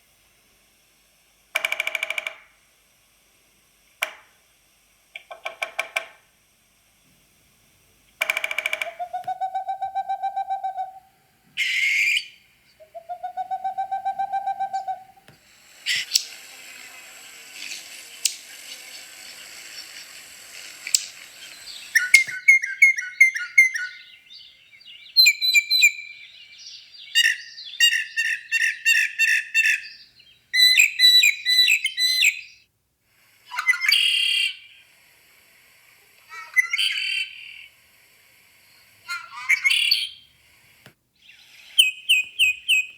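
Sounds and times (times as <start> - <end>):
birds long held calls: 8.2 - 32.7, 33.5 - 34.9, 39.1 - 40.3, 41.2 - 42.9
birds chirping and trilling: 11.6 - 15.2, 17.6 - 32.7, 33.5 - 34.7, 41.2 - 42.9.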